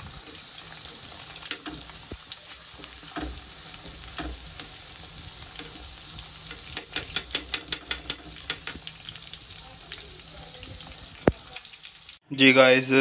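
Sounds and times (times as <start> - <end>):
deep-frying sizzle: 0.0 - 12.2
metal spoon stirring: 2.8 - 9.3
spoon clicking against pan: 6.4 - 9.0.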